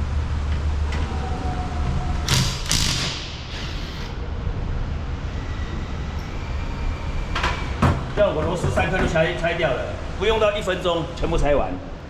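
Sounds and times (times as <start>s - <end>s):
steady low hum: 0.0s - 12.0s
impact wrench bursts: 2.3s - 4.2s.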